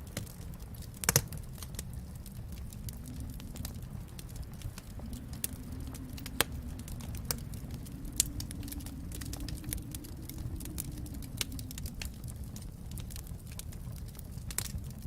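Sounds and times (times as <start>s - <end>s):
fire popping and snapping: 0.0s - 15.0s
low fire rumble: 0.0s - 15.0s
wood fire crackling: 0.0s - 15.0s.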